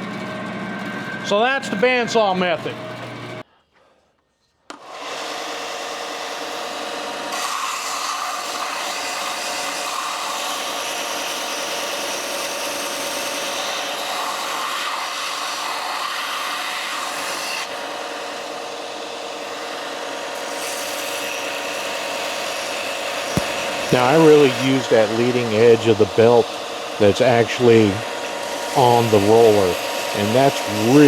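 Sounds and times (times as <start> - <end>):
belt sander grinding wood: 20.3 - 31.0
belt sander motor hum: 21.2 - 31.0.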